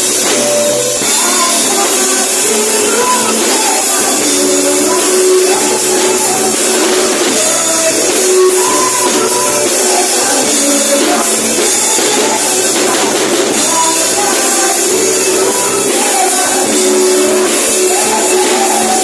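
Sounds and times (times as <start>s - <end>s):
band playing worship music: 0.0s - 19.0s
shimmering percussion: 0.0s - 19.0s.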